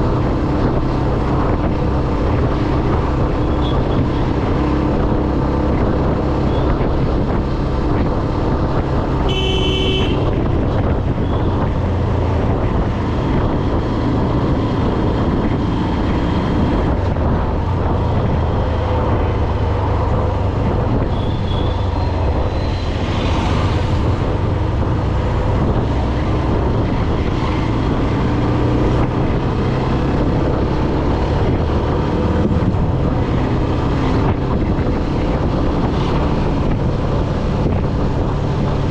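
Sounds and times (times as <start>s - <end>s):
road noise: 0.0s - 38.9s
vehicle engine rumble: 0.0s - 38.9s
wind on microphone: 0.0s - 38.9s
car horn blast: 9.3s - 10.3s.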